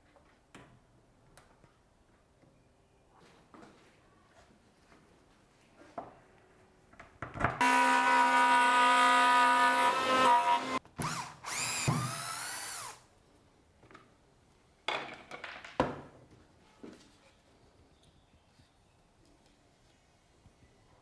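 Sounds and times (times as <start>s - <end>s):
palm router whining: 7.6s - 13.0s.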